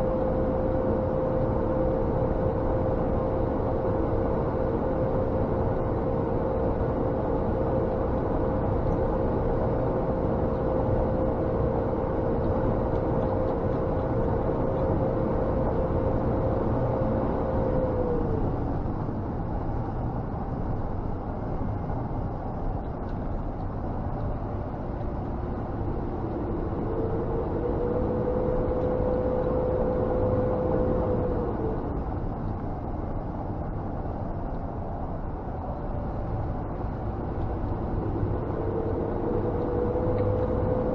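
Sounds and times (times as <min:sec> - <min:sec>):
truck engine and road rumble: 0:00.0 - 0:40.9
pitched drone: 0:25.3 - 0:32.1, 0:35.7 - 0:40.9.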